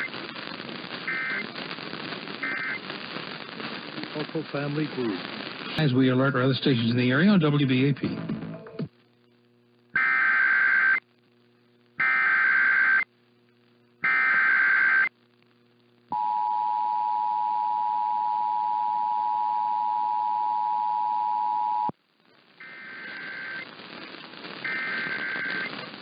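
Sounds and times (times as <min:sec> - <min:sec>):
data bursts: 0:00.0 - 0:00.2, 0:01.0 - 0:01.7, 0:02.3 - 0:03.0, 0:22.6 - 0:26.0
noisy crackling: 0:00.0 - 0:26.0.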